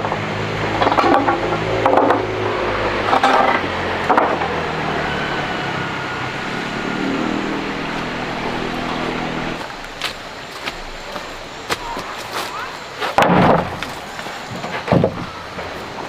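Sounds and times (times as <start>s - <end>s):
engine running: 0.0s - 12.2s.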